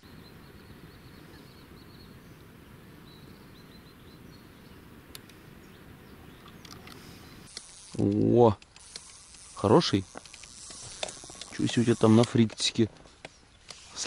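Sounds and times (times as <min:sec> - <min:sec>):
small birds chirping: 0:00.0 - 0:14.0
steady low hiss: 0:00.0 - 0:14.0
faint click: 0:05.1 - 0:05.4.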